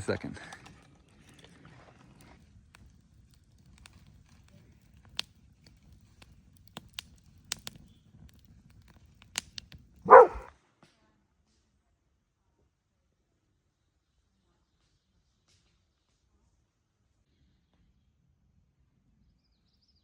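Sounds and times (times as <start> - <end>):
dog bark: 10.1 - 10.5.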